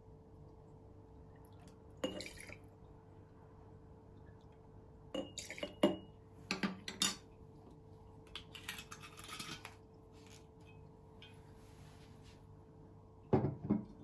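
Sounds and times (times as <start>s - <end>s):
soft rustle: 11.4s - 12.5s.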